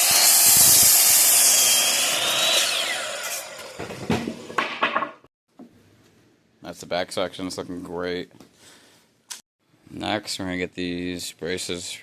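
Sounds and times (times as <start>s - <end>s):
power saw whining: 0.0s - 4.6s
wood knocking: 3.8s - 5.7s.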